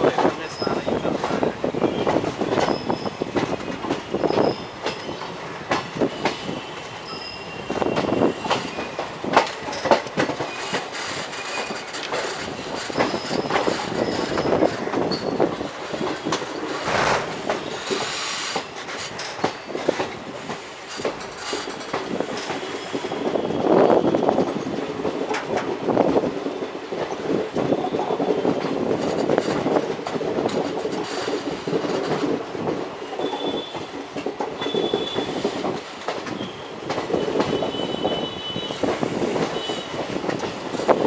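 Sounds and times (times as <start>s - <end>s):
train wheels clattering: 0.0s - 41.0s
high wheel squeal: 6.3s - 9.0s, 12.9s - 15.4s, 33.0s - 34.0s, 34.6s - 35.5s.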